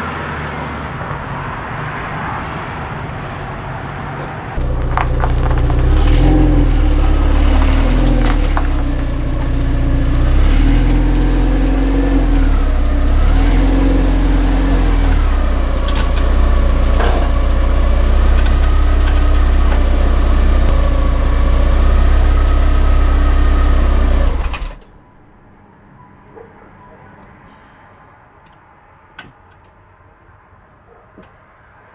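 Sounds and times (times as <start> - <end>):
steady low drone: 4.6 - 23.0
car engine running: 4.6 - 24.9.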